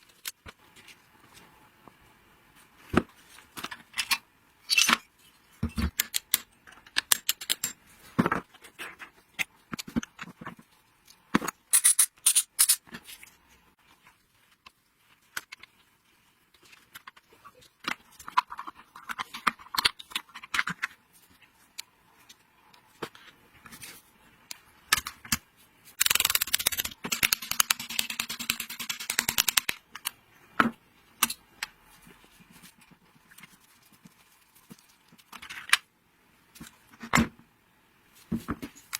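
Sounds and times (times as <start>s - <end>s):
metal tools clicking and clinking: 11.7s - 12.8s.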